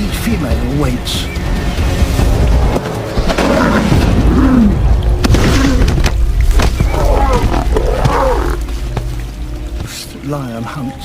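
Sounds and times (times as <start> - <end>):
lionesses growling: 3.2 - 9.2.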